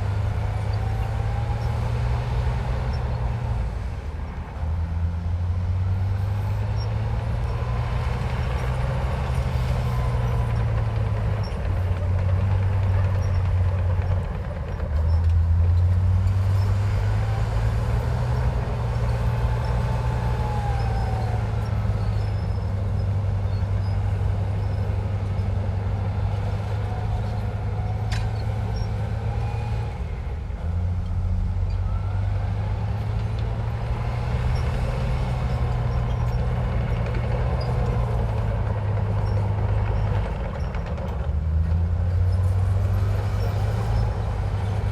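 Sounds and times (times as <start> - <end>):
bulldozer engine drone: 0.0 - 44.9
faint machinery squeals: 6.1 - 30.0, 34.0 - 40.9, 42.2 - 44.9.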